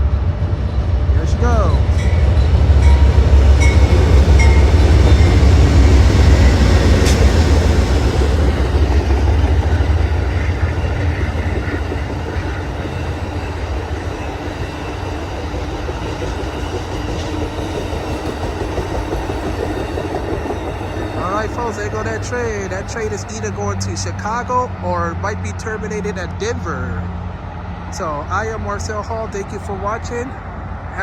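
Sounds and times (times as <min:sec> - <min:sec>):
passing train rumble: 0:00.0 - 0:31.0
train wheel clicks: 0:01.9 - 0:23.6.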